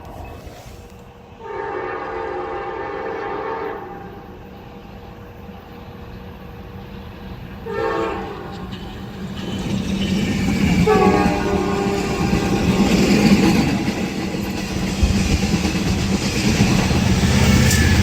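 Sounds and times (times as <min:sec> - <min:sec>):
locomotive air horn blast: 0:01.4 - 0:04.2, 0:07.6 - 0:08.5, 0:10.8 - 0:12.5.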